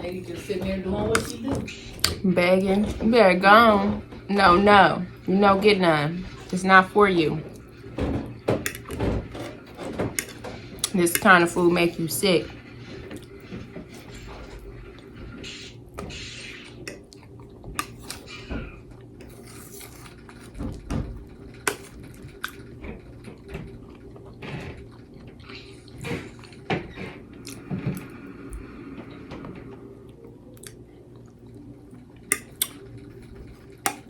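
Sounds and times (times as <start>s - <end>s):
cutlery scraping on plate: 0.7s - 2.2s, 8.6s - 11.6s
chewing: 30.2s - 32.8s.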